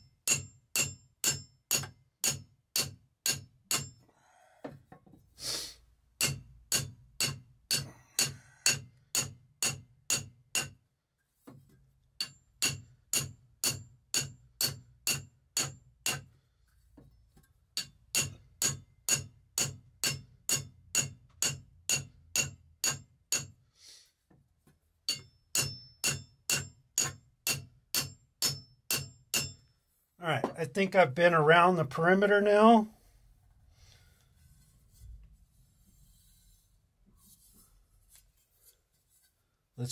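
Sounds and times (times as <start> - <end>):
metal file pinging saw blade: 12.2 - 16.3, 17.8 - 23.6, 25.1 - 29.6.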